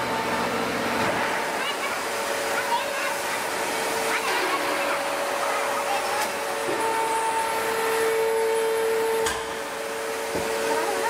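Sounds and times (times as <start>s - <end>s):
hydraulic press hissing and whining: 0.0s - 11.0s.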